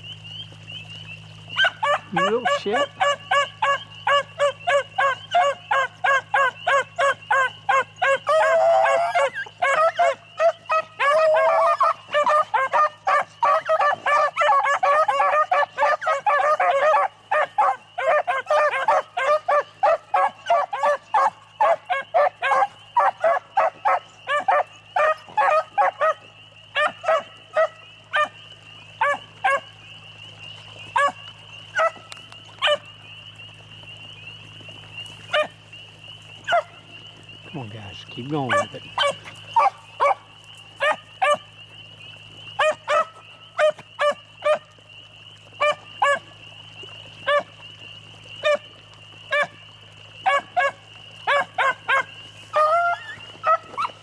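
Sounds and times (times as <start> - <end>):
dogs baying and barking: 0.5 - 54.0.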